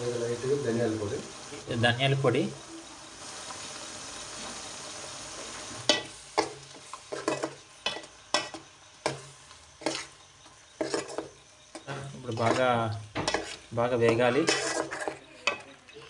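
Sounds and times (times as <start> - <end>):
spices sizzling in oil: 0.0 - 16.0
steel spoon scraping a pot: 5.9 - 9.2, 9.8 - 16.0.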